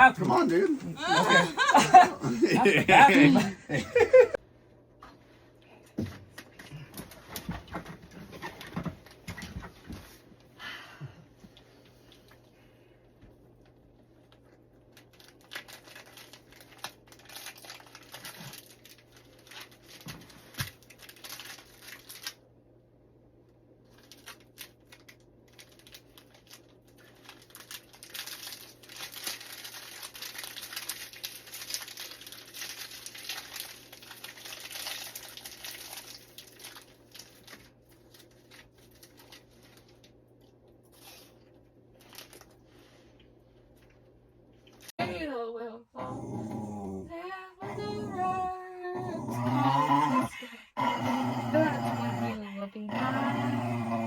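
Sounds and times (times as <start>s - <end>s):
crinkling rustling noise: 14.8s - 22.4s, 23.8s - 44.9s.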